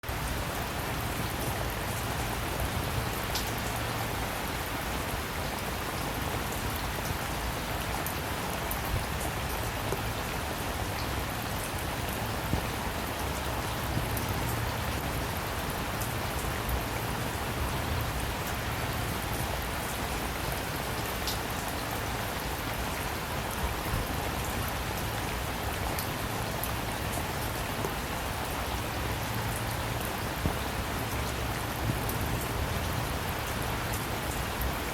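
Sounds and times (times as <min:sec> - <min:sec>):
rain pattering: 0:00.0 - 0:34.9
raindrops ticking: 0:00.1 - 0:04.6, 0:21.0 - 0:21.8.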